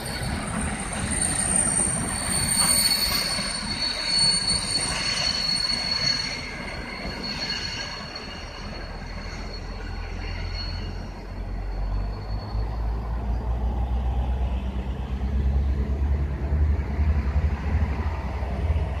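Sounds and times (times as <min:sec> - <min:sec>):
high wheel squeal: 0:00.0 - 0:13.9
low uneven train rumble: 0:00.0 - 0:19.0.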